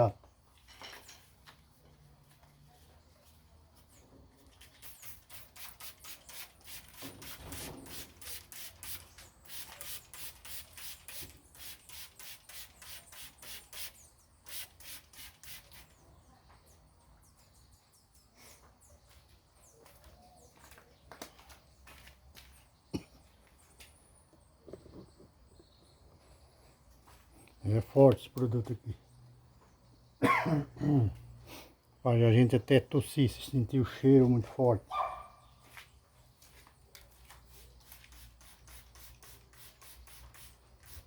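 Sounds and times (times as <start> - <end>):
trigger spray bottle squirts: 4.6 - 15.9, 37.5 - 41.0.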